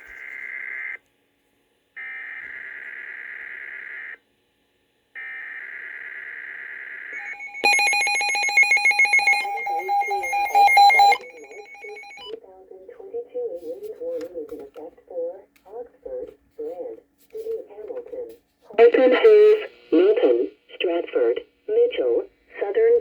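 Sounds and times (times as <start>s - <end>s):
buzzy data tones: 7.2s - 12.3s
pulsing alert tone: 7.2s - 12.3s.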